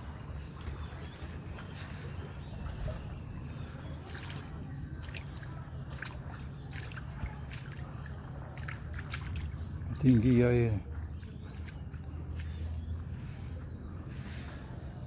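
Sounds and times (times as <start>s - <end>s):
floodwater sloshing and trickling: 0.0s - 15.0s
steady low rumble: 0.0s - 15.0s.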